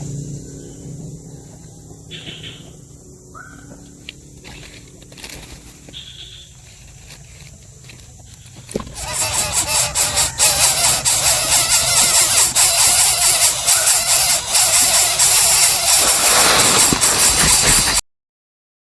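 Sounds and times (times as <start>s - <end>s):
bird chick squealing call: 8.9s - 18.0s.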